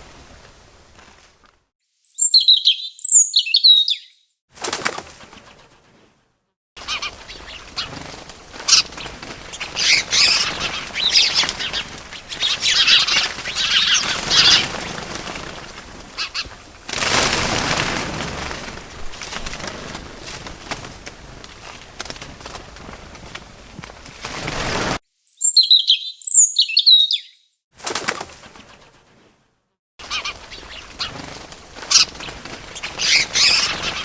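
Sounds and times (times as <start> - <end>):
wings fluttering: 0.0 - 1.7, 3.4 - 25.0, 27.8 - 34.0
small birds chirping: 1.9 - 4.3, 6.8 - 16.6, 25.1 - 27.6, 30.0 - 34.0.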